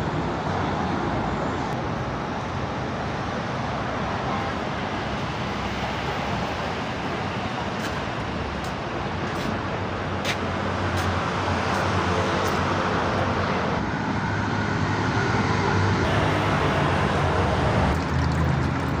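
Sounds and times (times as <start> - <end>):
road noise: 0.0 - 19.0
low engine hum: 4.9 - 19.0.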